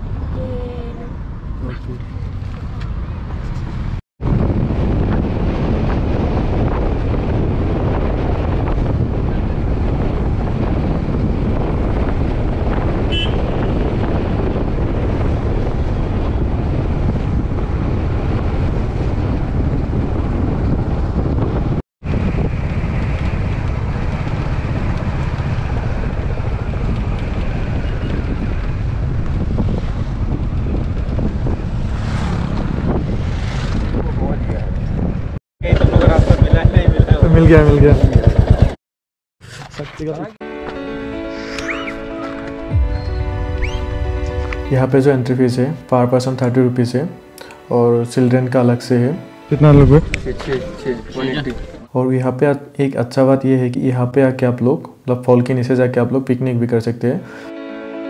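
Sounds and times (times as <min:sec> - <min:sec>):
vehicle rumble: 0:00.0 - 0:38.8, 0:41.6 - 0:45.9
wind buffeting microphone: 0:03.0 - 0:38.8, 0:49.6 - 0:51.9.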